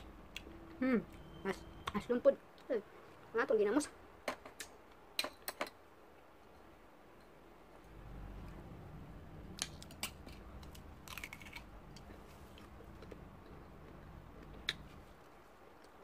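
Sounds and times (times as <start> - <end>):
low rumble: 7.8 - 14.6
crunching crisp fruit: 9.6 - 15.0.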